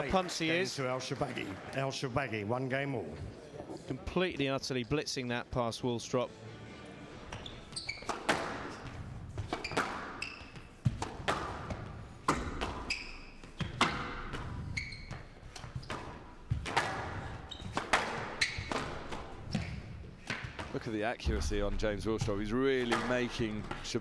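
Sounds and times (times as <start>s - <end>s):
court shoes squeaking: 7.2s - 20.8s
squash ball cracking off rackets: 15.5s - 20.8s.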